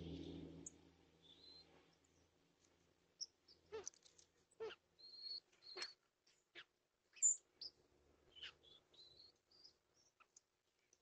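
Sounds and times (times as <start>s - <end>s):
birds chirping and whistling: 1.2s - 1.7s, 5.0s - 6.0s, 7.2s - 10.1s.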